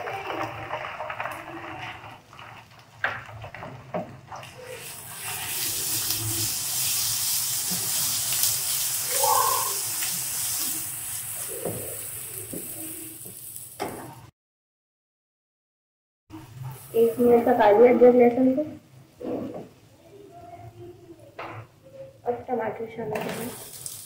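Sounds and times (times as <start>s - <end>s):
food sizzling in oil: 0.0s - 14.3s, 23.2s - 24.0s
spatula stirring: 0.8s - 13.4s.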